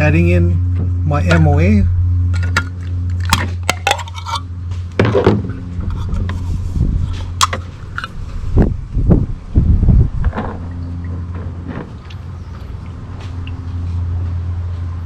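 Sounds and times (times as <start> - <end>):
steady low hum: 0.0 - 15.0
oil can clicks and knocks: 2.3 - 4.4, 7.4 - 8.1.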